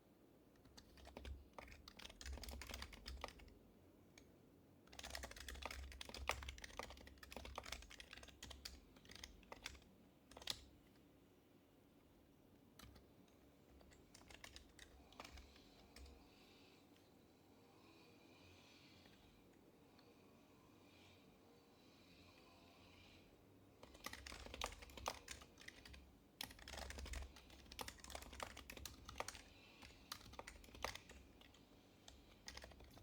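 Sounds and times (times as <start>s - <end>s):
soft keyboard typing: 0.6s - 4.3s, 4.9s - 11.1s, 12.6s - 17.1s, 23.8s - 33.0s.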